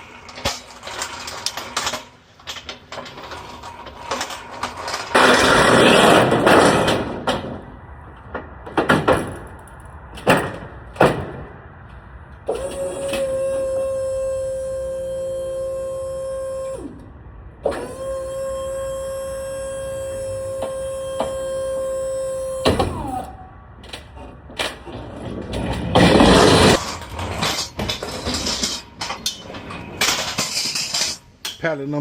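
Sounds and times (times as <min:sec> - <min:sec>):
metal clanks and rattling: 0:00.0 - 0:13.4, 0:23.8 - 0:31.8
lift gate motor whine: 0:12.4 - 0:31.2.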